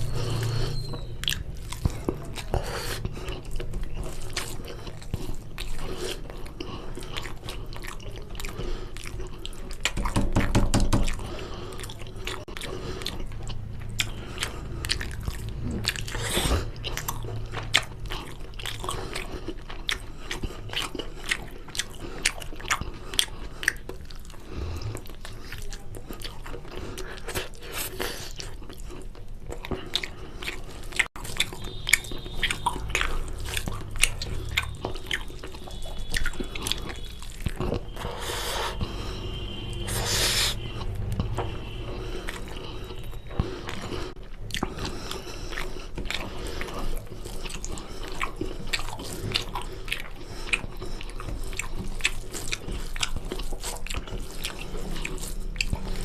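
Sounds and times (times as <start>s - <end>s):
chewing with wet mouth clicks: 0.0s - 56.0s.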